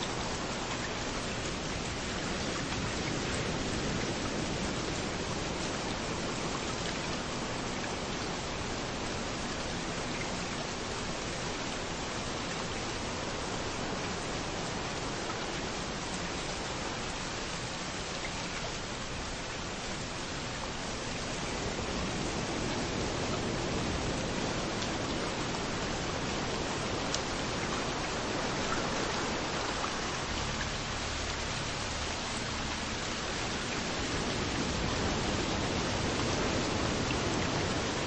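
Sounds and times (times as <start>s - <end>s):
rain falling: 0.0s - 38.0s.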